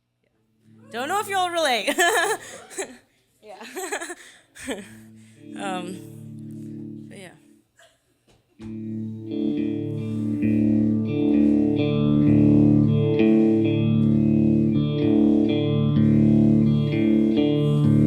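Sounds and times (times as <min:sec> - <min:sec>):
guitar strumming sustained chords: 0:00.6 - 0:02.0, 0:04.9 - 0:07.6, 0:08.7 - 0:18.0.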